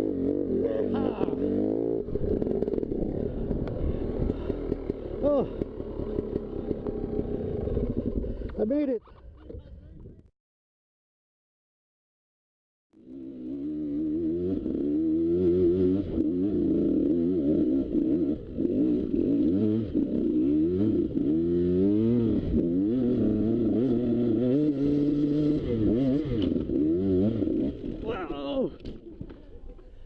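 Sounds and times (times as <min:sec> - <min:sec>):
dirt bike engine revving: 0:00.0 - 0:08.5, 0:13.0 - 0:28.2.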